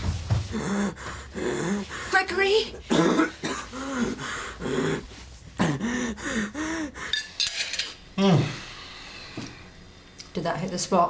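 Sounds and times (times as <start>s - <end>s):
person moaning and gasping: 0.4s - 7.2s, 8.2s - 8.8s.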